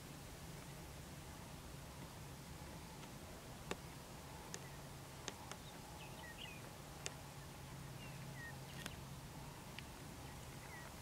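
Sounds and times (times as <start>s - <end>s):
faint bird chirps: 3.8s - 11.0s.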